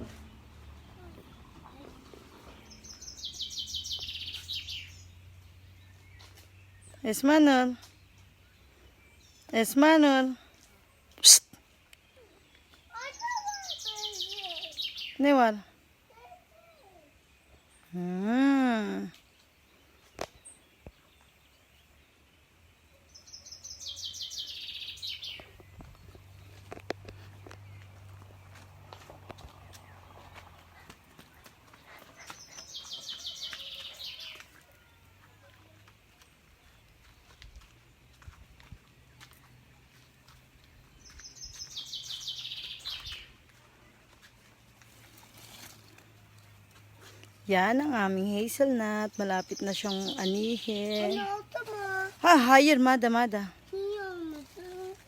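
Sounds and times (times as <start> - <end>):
songbird trilling: 2.8 - 5.0, 11.2 - 11.5, 23.2 - 25.6, 41.2 - 43.3, 48.9 - 51.7.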